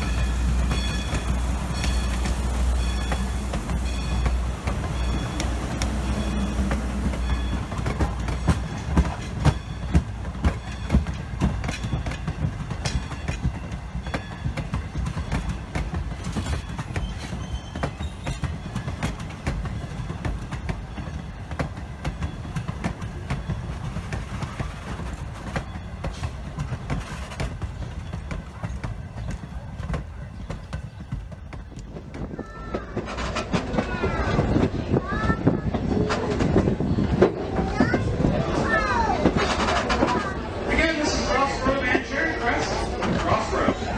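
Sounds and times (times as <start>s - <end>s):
train wheels clicking over rail joints: 0.0s - 41.0s
train rumble: 0.0s - 43.9s.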